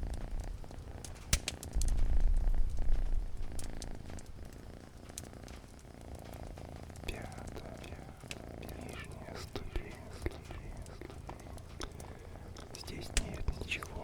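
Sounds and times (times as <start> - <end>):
cat purring: 0.0 - 14.0
wood fire crackling: 0.0 - 14.0
sharp crack: 1.0 - 14.0.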